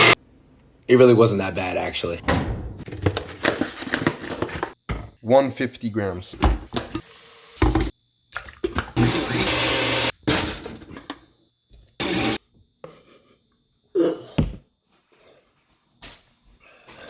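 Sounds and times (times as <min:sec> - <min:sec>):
knocks and thuds: 0:02.2 - 0:03.3
blender running: 0:09.0 - 0:10.1, 0:12.0 - 0:12.4.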